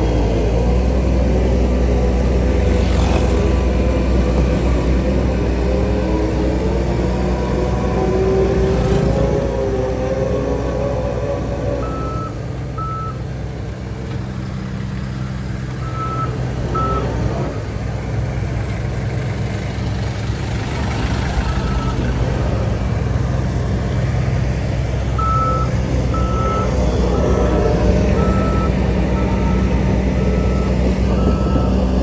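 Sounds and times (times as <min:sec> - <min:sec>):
diesel engine running: 0:00.0 - 0:32.0
reversing alarm beeps: 0:11.8 - 0:13.2, 0:15.2 - 0:17.1, 0:21.4 - 0:22.1, 0:25.2 - 0:31.9.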